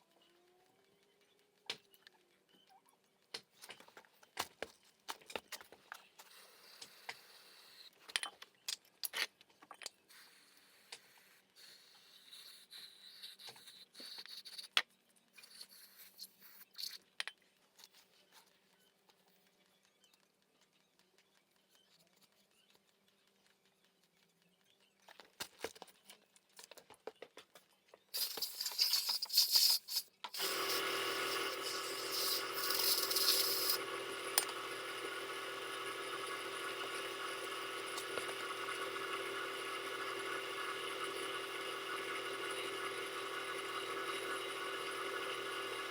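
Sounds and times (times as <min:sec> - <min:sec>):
machine humming: 0:30.4 - 0:45.9.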